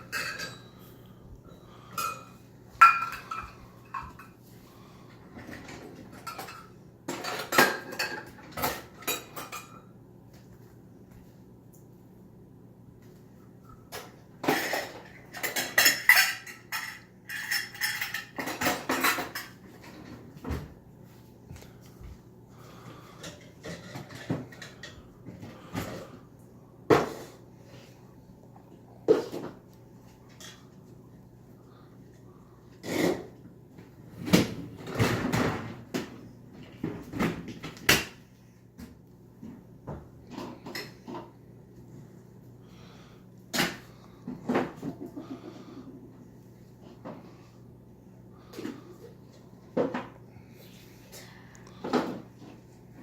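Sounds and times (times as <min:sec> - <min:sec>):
dishes and silverware clinking: 0:00.0 - 0:00.8, 0:01.8 - 0:04.4, 0:06.1 - 0:10.0, 0:14.0 - 0:19.6
drawers and cupboards opening and shutting: 0:34.1 - 0:35.9.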